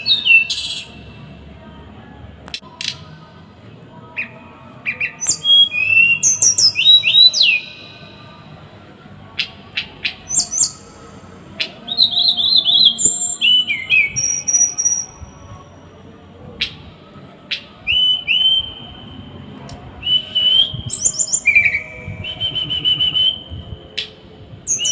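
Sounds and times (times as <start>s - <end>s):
songbird singing harsh notes: 0.0s - 1.0s, 4.2s - 8.3s, 9.4s - 15.5s, 20.0s - 24.1s, 24.7s - 24.9s.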